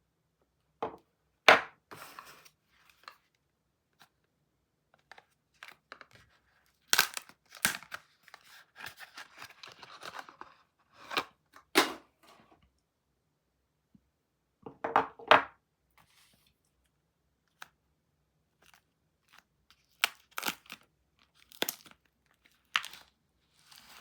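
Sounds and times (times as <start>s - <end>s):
soap wrapper tearing: 5.6s - 10.4s, 18.6s - 24.0s
wrapper crinkling: 19.8s - 24.0s.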